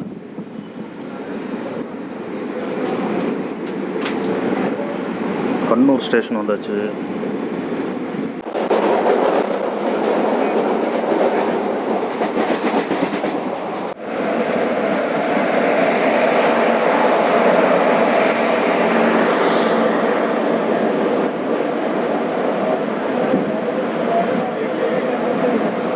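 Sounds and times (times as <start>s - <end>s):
train wheels rumbling on track: 0.0s - 25.9s.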